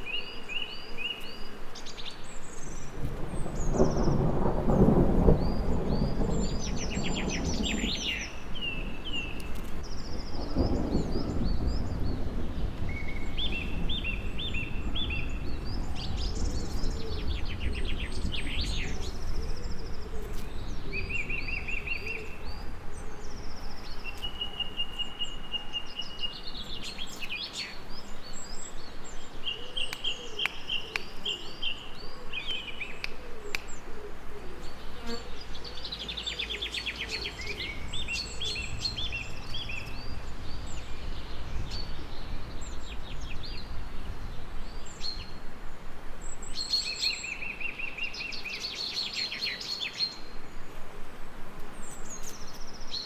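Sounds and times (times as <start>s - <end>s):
songbirds singing and calling: 0.0s - 53.0s
rain: 1.9s - 30.1s, 35.4s - 51.9s
thunder rumbling: 2.9s - 24.2s, 36.9s - 46.6s.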